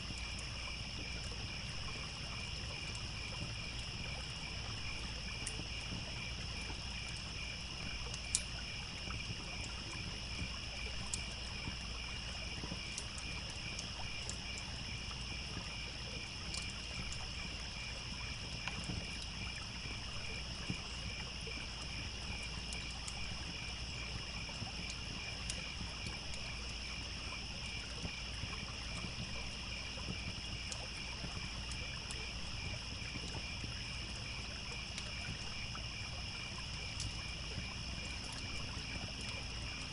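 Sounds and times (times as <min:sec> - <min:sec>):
crickets chirping: 0:00.0 - 0:39.9
campfire crackling pops: 0:06.6 - 0:11.7.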